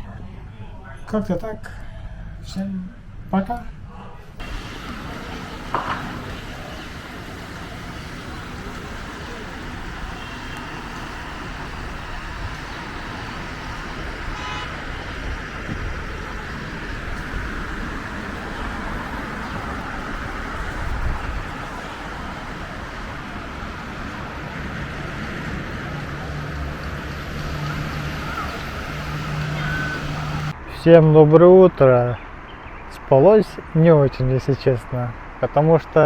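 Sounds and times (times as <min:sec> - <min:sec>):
passing vehicles: 0:00.0 - 0:36.0
low engine hum: 0:03.0 - 0:30.6
car horn toot: 0:08.5 - 0:16.7, 0:27.6 - 0:30.5.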